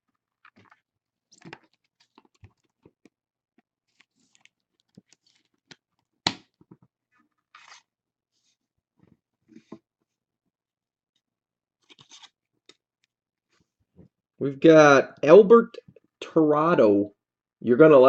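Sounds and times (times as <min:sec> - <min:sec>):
cards clicking and scratching: 0:07.5 - 0:07.9, 0:11.8 - 0:12.8.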